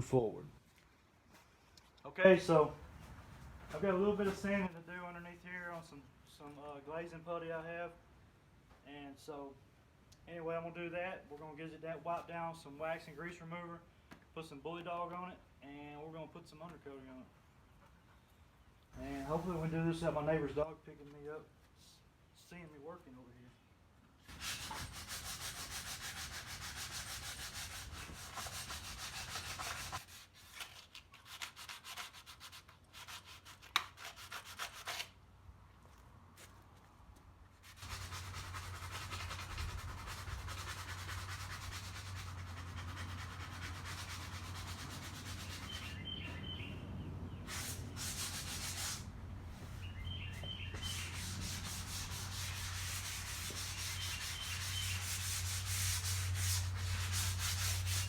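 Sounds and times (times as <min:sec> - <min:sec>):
sanding rasp: 0:24.3 - 0:35.2, 0:37.6 - 0:46.0, 0:47.5 - 0:49.1, 0:50.8 - 0:58.0
faint bird chirps: 0:45.7 - 0:47.4, 0:49.8 - 0:51.2.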